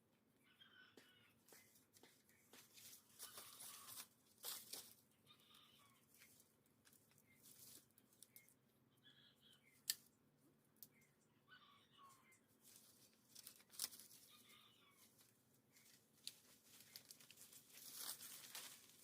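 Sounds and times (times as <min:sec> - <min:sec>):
faint bird chirps: 0:00.3 - 0:02.6, 0:07.2 - 0:09.9, 0:10.8 - 0:12.5
dry leaves rustling and crunching: 0:02.7 - 0:05.0, 0:07.3 - 0:08.4, 0:12.6 - 0:19.0.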